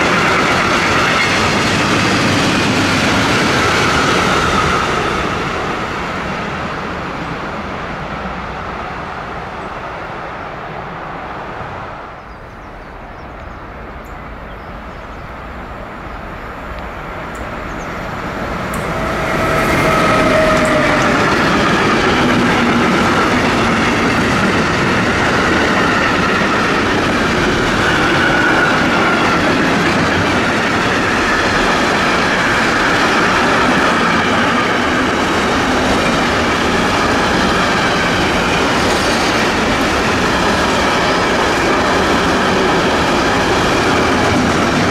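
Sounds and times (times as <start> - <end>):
train wheel clickety-clack: 0.0 - 6.1, 16.7 - 44.9
train wagons rumbling and clattering: 0.0 - 10.0, 11.0 - 44.9.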